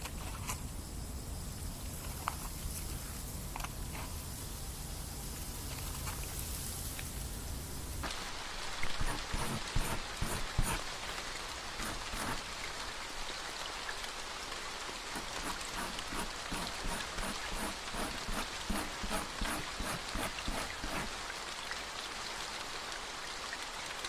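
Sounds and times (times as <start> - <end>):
rain patter: 0.0 - 24.0.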